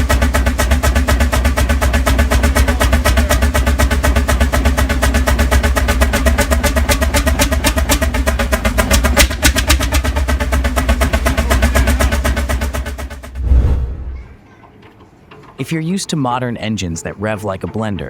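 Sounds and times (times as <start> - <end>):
two-stroke engine exhaust beating: 0.0 - 13.4.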